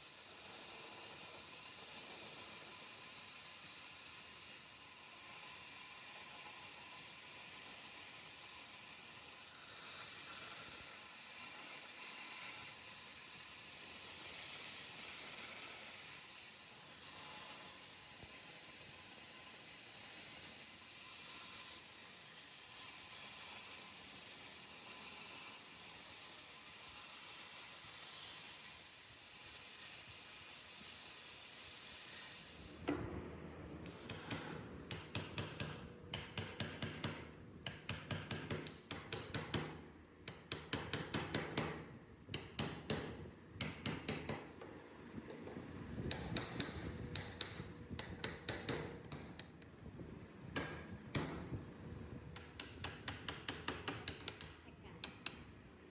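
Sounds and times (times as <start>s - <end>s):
mallet striking chisel into wood: 33.9s - 44.5s, 46.1s - 49.5s, 50.6s - 51.5s, 52.4s - 55.4s.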